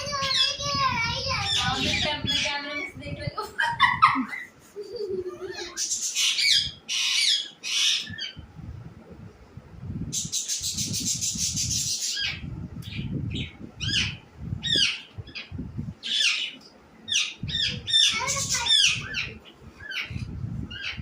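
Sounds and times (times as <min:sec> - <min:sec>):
bird screeching and chirping: 0:00.0 - 0:02.9, 0:05.5 - 0:08.4, 0:10.2 - 0:21.0.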